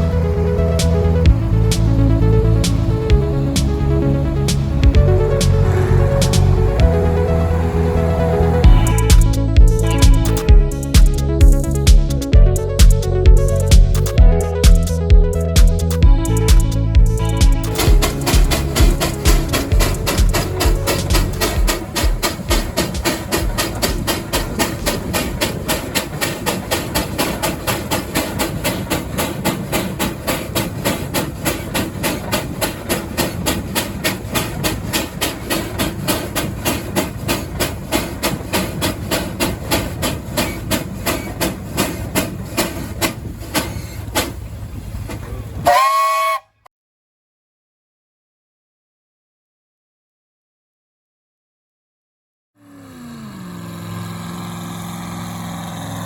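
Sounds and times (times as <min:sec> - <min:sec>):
old engine exhaust beat: 0:00.0 - 0:46.4, 0:52.8 - 0:56.0
steam hiss: 0:17.7 - 0:44.5
short whistle blast: 0:45.6 - 0:46.7.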